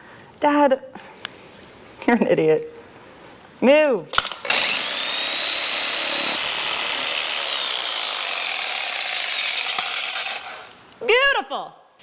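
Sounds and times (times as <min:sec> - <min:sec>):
power saw cutting: 0:04.2 - 0:10.8.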